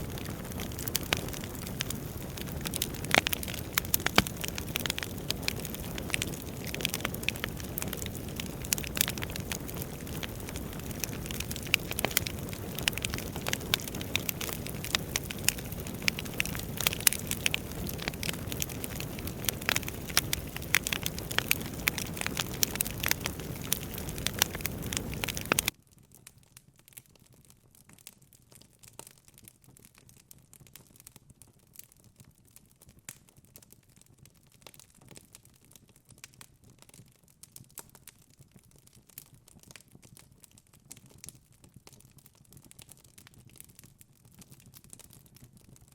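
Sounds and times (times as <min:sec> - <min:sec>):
low rumble of flames: 0:00.0 - 0:25.7
wood fire crackling and popping: 0:00.0 - 0:26.3.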